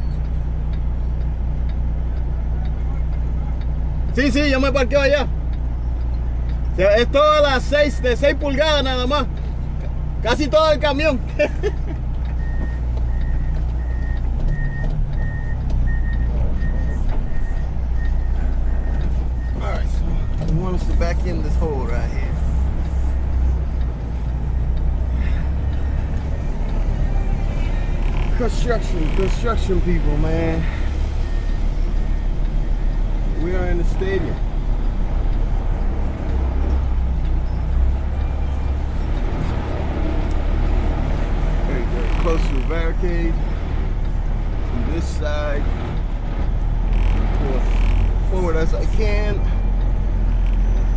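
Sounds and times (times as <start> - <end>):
diesel truck engine idling: 0.0 - 50.9
reverse warning alarm beeping: 12.3 - 21.3, 24.5 - 34.4, 48.4 - 50.9.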